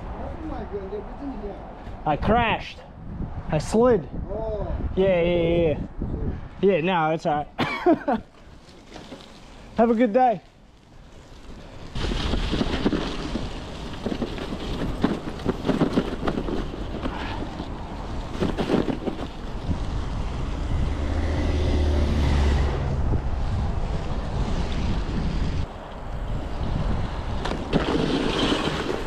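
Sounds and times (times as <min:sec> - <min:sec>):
wind buffeting microphone: 0:00.0 - 0:06.8, 0:11.8 - 0:29.0
bicycle knocks and rattles: 0:11.9 - 0:19.8, 0:27.3 - 0:29.0.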